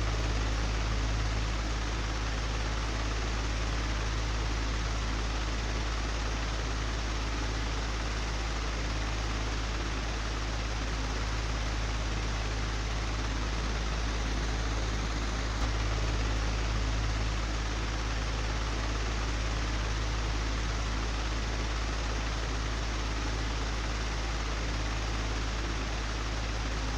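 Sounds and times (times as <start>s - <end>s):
low hum: 11.3s - 21.1s
electric fan whooshing: 12.7s - 17.4s.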